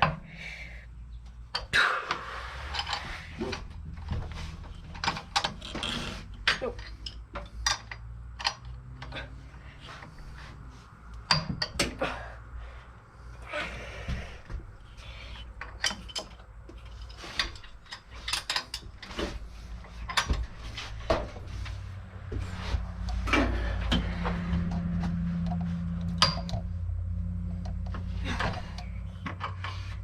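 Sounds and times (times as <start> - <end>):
steady low hum: 0.0 - 30.0
hand tools clicking on metal: 15.3 - 19.2.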